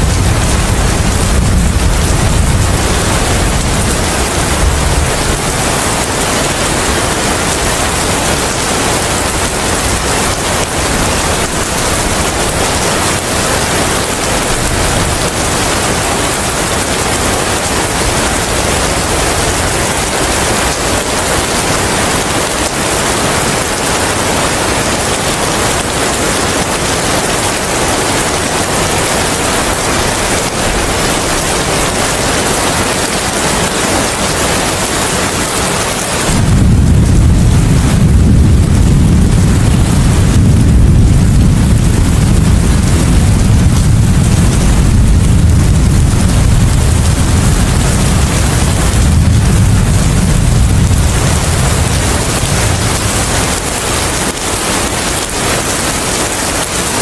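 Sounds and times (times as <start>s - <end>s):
low rumble: 0.0s - 13.1s, 36.3s - 55.4s
heavy rain with wind: 0.0s - 57.0s.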